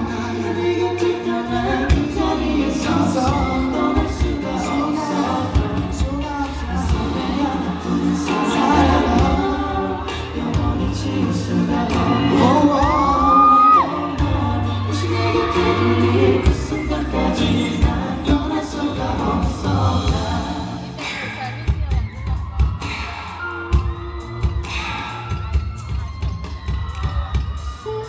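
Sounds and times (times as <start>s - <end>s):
crowd noise: 0.0s - 28.0s
person singing: 0.0s - 28.0s
pop band music: 0.0s - 28.0s.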